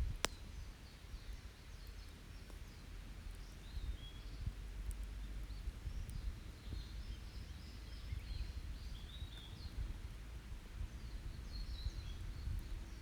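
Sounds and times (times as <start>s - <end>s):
campfire burning: 0.0s - 13.0s.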